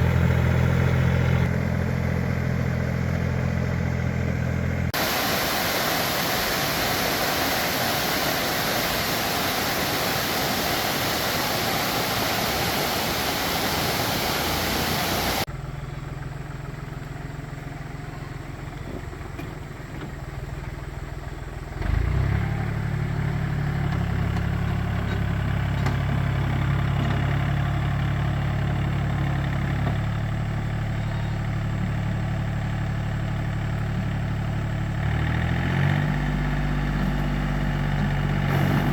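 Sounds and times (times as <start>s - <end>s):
tractor engine running: 0.0s - 38.9s
loud rushing noise: 38.5s - 38.9s.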